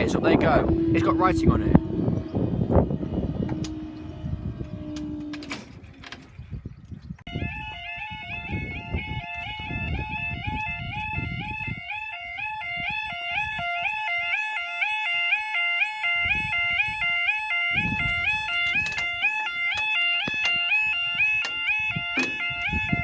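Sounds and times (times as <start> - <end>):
two-tone crossing alarm: 0.0 - 5.9, 7.3 - 23.0
low rumble: 0.0 - 11.9.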